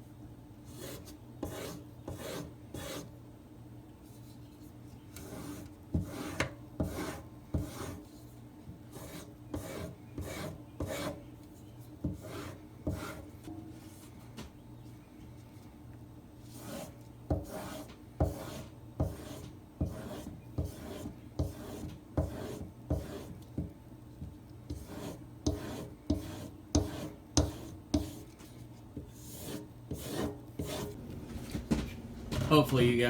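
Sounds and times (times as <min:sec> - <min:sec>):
light thuds: 0:31.0 - 0:32.8.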